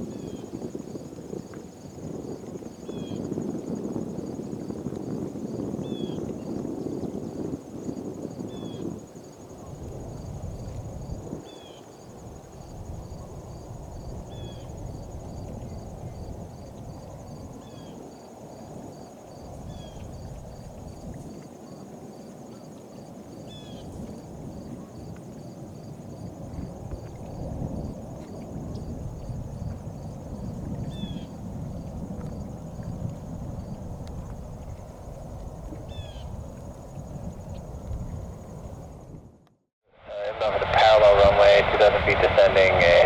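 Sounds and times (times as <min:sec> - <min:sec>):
crickets chirping: 0:00.0 - 0:39.4
low rumble of wind or traffic: 0:40.1 - 0:43.0.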